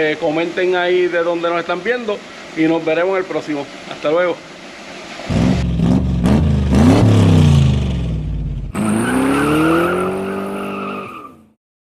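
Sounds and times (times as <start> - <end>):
car engine revving: 5.3 - 10.8.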